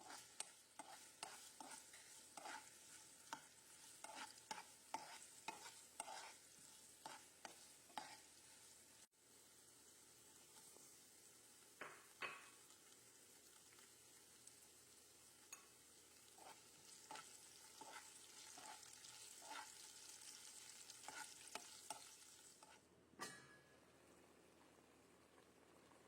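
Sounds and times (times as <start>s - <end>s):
spoon scraping a pan: 0.0s - 9.0s, 15.5s - 23.5s
food sizzling in a pan: 0.0s - 26.0s.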